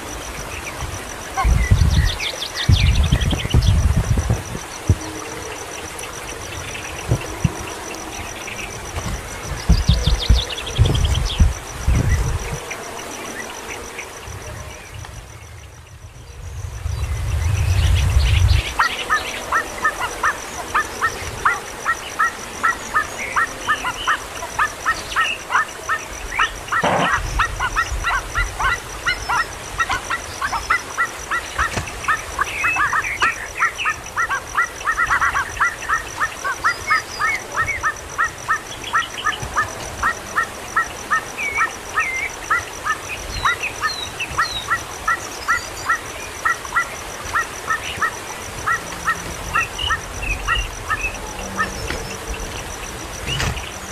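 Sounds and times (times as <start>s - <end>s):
low rumble: 14.4s - 18.8s.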